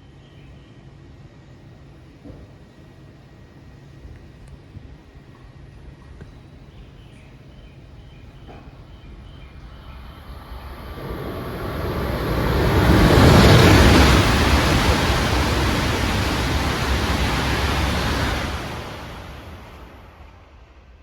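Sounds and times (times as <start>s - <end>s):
train passing at high speed: 7.8s - 21.0s.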